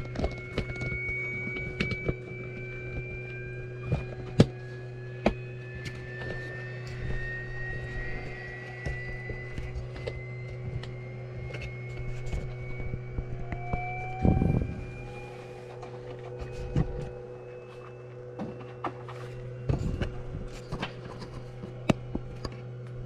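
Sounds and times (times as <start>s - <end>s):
electrical low hum: 0.0s - 23.0s
high whines rising in pitch: 0.0s - 23.0s.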